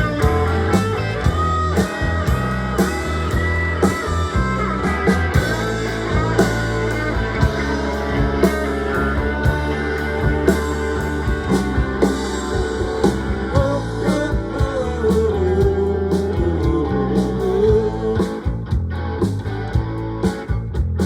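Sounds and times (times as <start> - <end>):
electric guitar lead bending: 0.0 - 20.8
bass and drums: 0.0 - 21.0.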